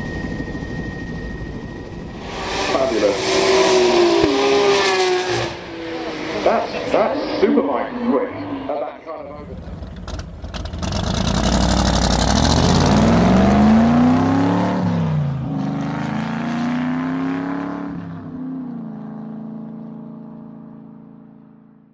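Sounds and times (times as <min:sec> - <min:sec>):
car engine revving: 0:02.0 - 0:21.0.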